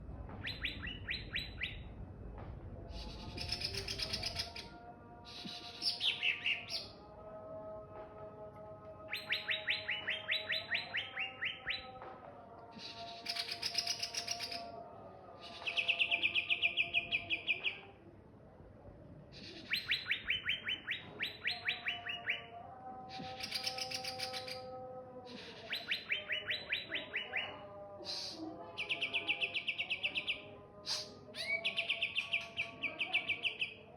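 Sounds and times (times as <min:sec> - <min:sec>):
bird singing trills and whistles: 0:00.4 - 0:01.8, 0:09.1 - 0:12.0, 0:12.8 - 0:14.6, 0:19.5 - 0:22.5, 0:25.3 - 0:33.8.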